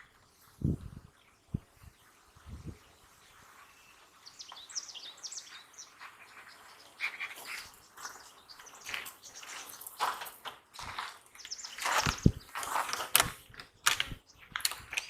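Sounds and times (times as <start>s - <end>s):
songbird chirping: 0.0s - 15.0s
clicks and scrapes: 8.9s - 15.0s.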